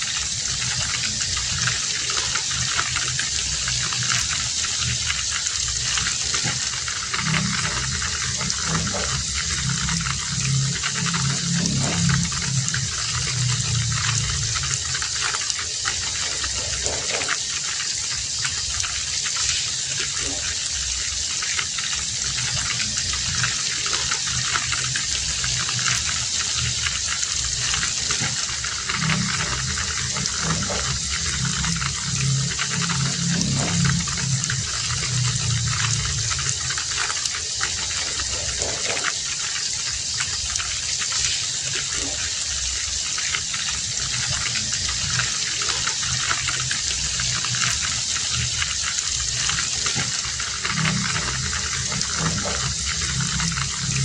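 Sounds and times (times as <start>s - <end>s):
heavy rain falling: 0.0s - 54.0s
low rumble: 3.4s - 15.3s, 24.5s - 37.0s.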